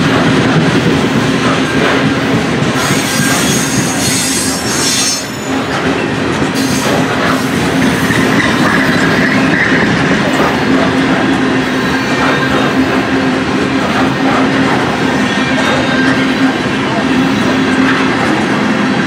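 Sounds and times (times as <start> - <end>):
train wheels rumbling on rails: 0.0 - 19.0
lower wheel squeal: 2.8 - 5.6, 7.8 - 9.9, 15.0 - 16.6
high wheel squeal: 2.8 - 5.7, 6.6 - 10.0, 15.0 - 17.7.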